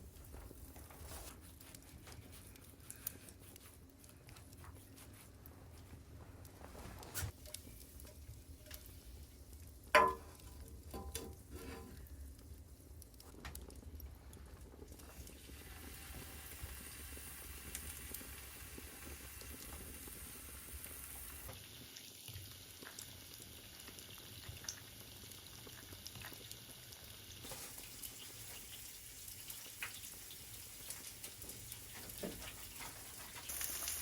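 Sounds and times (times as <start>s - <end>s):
food sizzling in a pan: 15.1s - 34.0s.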